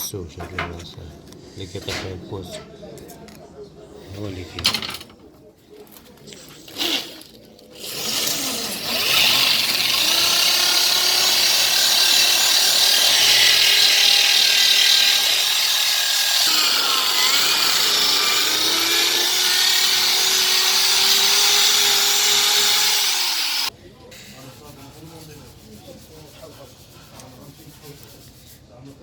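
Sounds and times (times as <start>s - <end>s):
rotary grinding tool on metal: 7.7s - 23.7s.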